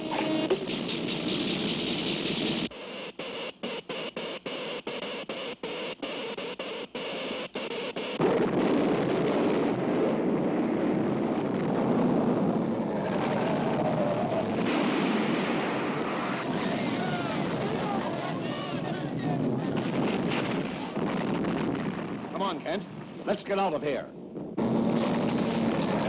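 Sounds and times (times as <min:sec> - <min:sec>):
deep rumbling noise: 0:08.2 - 0:23.2, 0:24.1 - 0:26.0.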